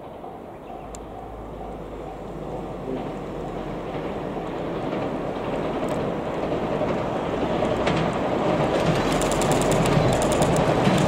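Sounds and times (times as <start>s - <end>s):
electric train approaching: 0.0s - 11.0s
train wheel clacks: 2.6s - 11.0s.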